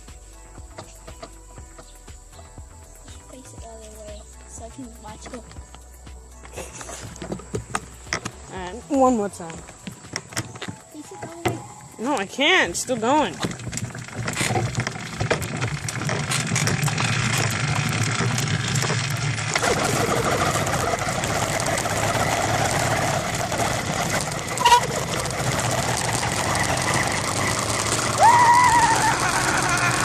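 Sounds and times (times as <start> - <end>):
small bicycle engine running: 3.0 - 30.0.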